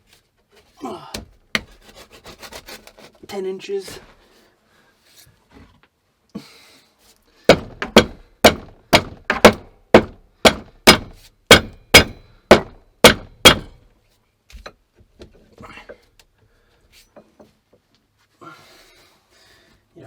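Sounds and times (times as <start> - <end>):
heavy blows on wood: 7.4 - 13.8.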